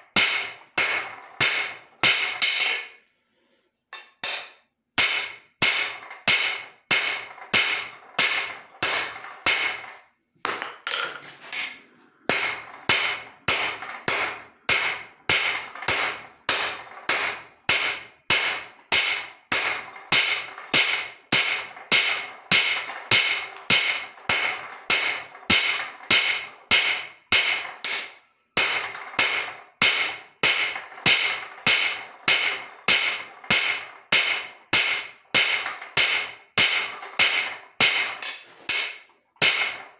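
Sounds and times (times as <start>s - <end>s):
hammer ringing on anvil: 4.0s - 9.8s.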